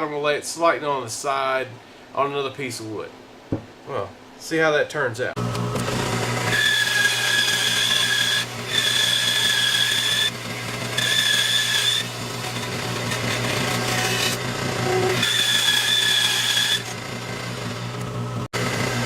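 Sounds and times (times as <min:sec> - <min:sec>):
bandsaw cutting wood: 0:05.4 - 0:19.0.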